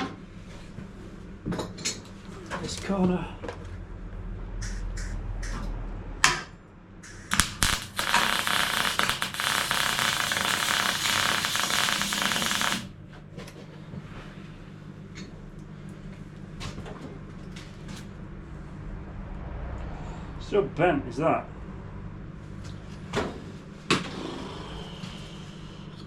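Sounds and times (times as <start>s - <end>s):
welding arc crackling: 7.0s - 13.0s.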